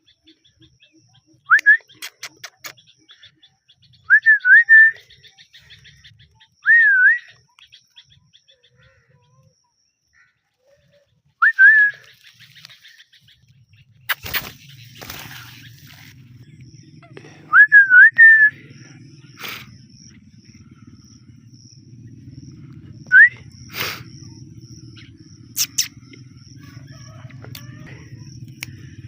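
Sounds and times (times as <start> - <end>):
quick clicks: 1.6 - 2.9, 14.1 - 15.9, 25.6 - 26.2.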